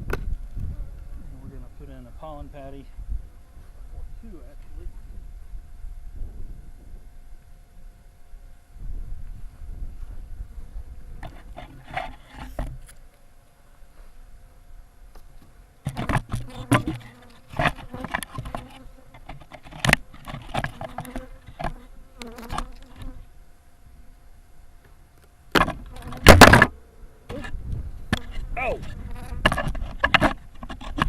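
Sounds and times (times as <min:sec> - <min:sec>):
honeybees buzzing: 0:10.0 - 0:23.5, 0:25.5 - 0:31.0
knocks and scrapes of hive boxes: 0:11.2 - 0:12.9, 0:15.2 - 0:23.2, 0:25.5 - 0:31.0.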